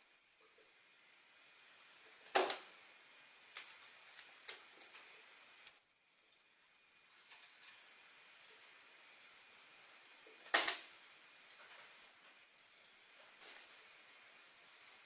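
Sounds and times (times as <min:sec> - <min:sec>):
faint steady high tone: 0:04.1 - 0:10.4.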